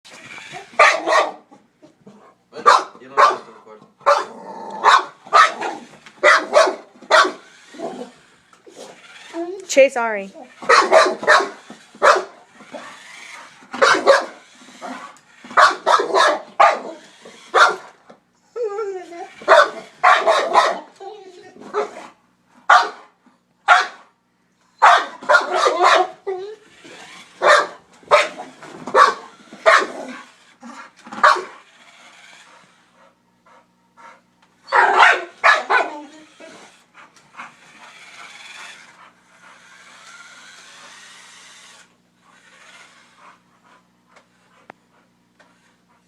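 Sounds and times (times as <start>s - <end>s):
dog barking sharply: 0.8s - 1.4s, 2.6s - 3.4s, 4.1s - 7.4s, 10.7s - 12.3s, 15.6s - 16.9s, 17.6s - 17.9s, 19.5s - 20.8s, 22.7s - 23.0s, 23.7s - 24.0s, 24.8s - 26.2s, 27.4s - 30.0s, 31.2s - 31.6s, 34.7s - 35.9s.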